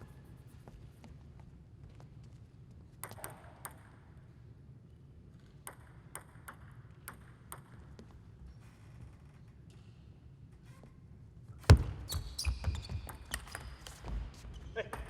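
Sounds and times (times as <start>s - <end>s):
low hall hum: 0.0s - 12.2s
table tennis ball hits: 5.6s - 7.8s.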